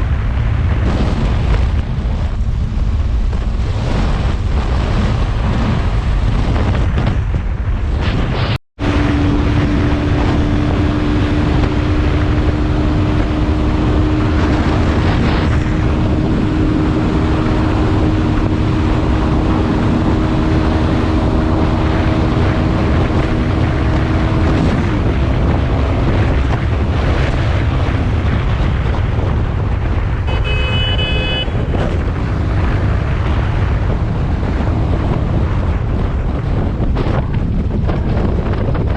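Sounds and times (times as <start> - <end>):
wind rushing over microphone: 0.0 - 38.9
motorcycle engine: 8.8 - 38.2
motorcycle horn: 30.2 - 32.0.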